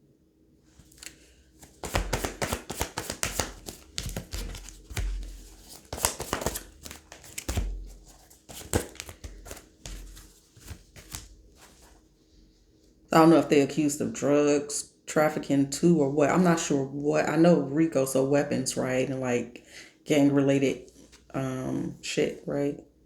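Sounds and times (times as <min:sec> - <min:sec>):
cards being shuffled: 0:00.8 - 0:12.0.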